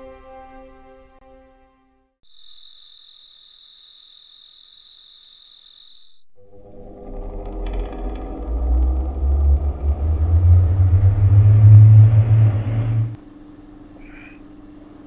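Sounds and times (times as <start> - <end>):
background music: 0.0 - 2.2
crickets chirping: 2.2 - 6.3
air conditioner rumbling: 8.8 - 15.0.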